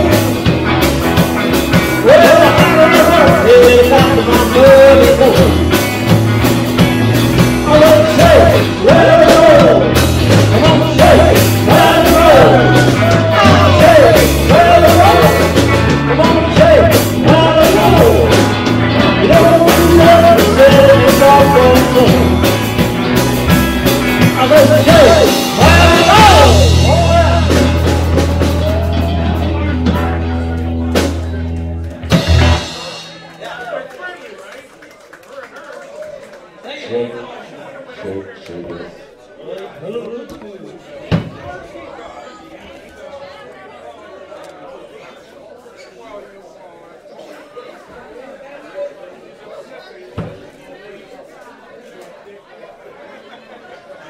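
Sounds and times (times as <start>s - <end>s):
bending melodic lead line: 0.0s - 33.6s
live rock band playing: 0.0s - 33.9s.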